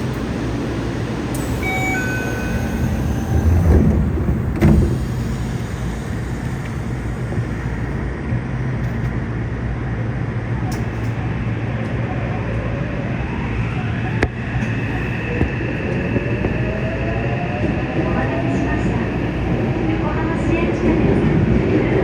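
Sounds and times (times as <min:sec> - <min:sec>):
train motors whining upward: 0:00.0 - 0:09.0
train car steady hum: 0:00.0 - 0:22.0.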